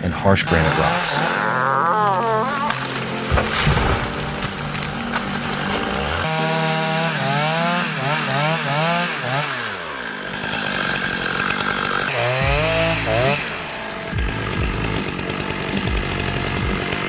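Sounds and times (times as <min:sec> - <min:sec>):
chainsaw cutting and revving: 0:00.0 - 0:17.0.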